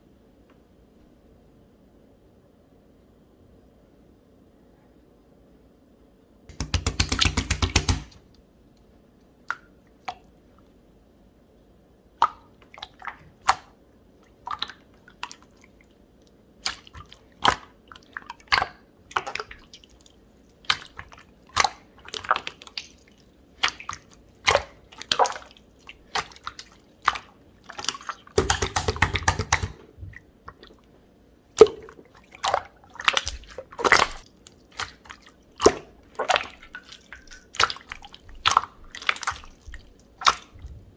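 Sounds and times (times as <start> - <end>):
wet slime pops and clicks: 6.5 - 8.2, 28.4 - 29.8.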